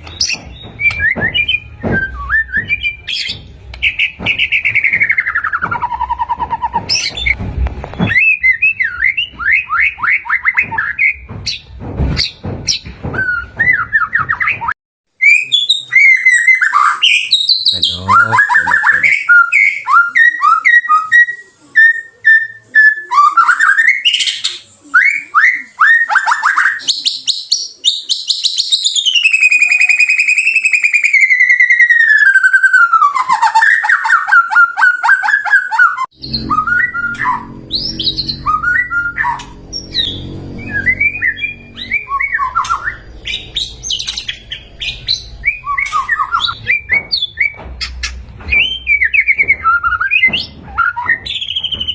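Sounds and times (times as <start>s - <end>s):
bird singing whistled notes: 13.2s - 47.9s, 48.5s - 51.9s.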